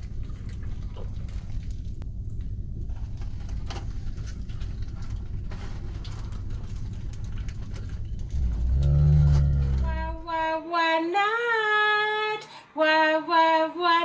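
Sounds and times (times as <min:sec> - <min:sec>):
car interior rumble: 0:00.0 - 0:10.6
person chewing sandwich: 0:03.0 - 0:09.9.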